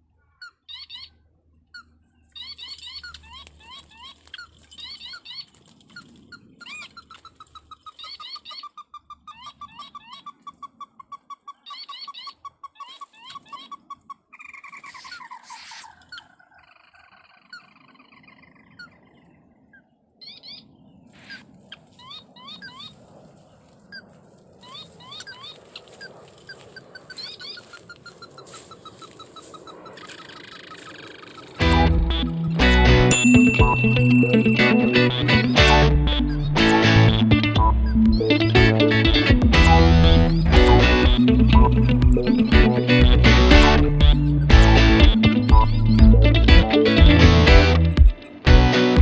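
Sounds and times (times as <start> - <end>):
crake calling: 26.8 - 47.0.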